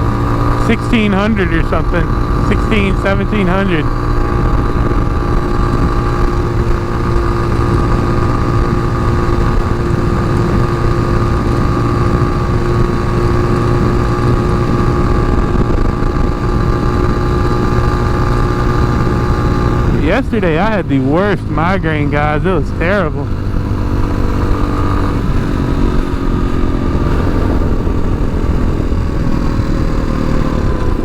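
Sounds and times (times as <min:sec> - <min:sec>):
motorcycle engine cruising: 0:00.0 - 0:31.0
wind rumble on microphone: 0:03.9 - 0:20.0.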